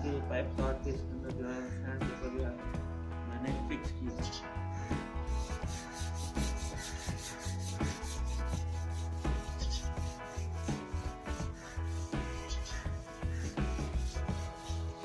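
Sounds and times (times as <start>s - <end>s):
background music: 0.0s - 15.0s
sandpaper rubbing wood: 5.3s - 15.0s.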